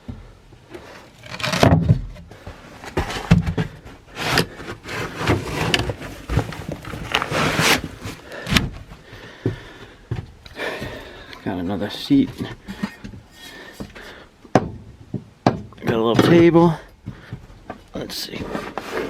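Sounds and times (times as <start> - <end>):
knocks and thumps of fittings: 12.2 - 17.9.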